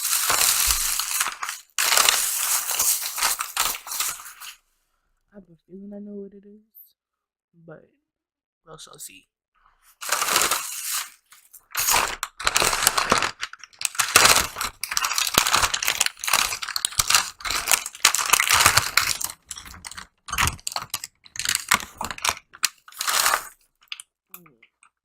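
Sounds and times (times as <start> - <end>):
food packaging crinkling: 0.0 - 4.6, 9.9 - 24.1.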